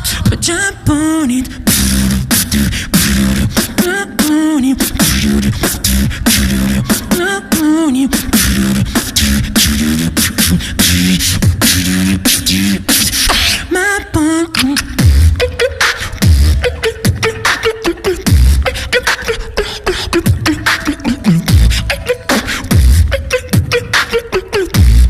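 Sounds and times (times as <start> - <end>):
beatboxing: 0.0 - 25.0
pulsing low bass: 1.7 - 3.6, 5.0 - 7.1, 8.2 - 12.9, 21.4 - 21.9.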